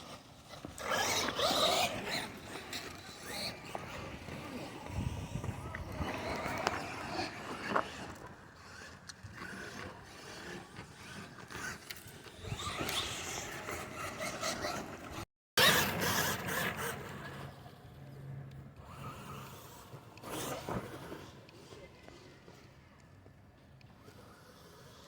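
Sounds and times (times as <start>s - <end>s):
toy trucks scraping over ground: 0.0s - 17.9s, 18.7s - 23.0s, 23.9s - 25.0s.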